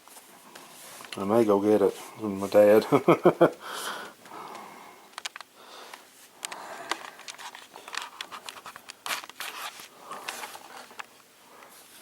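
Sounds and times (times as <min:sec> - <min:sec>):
small clicks and scraping: 0:04.5 - 0:11.8.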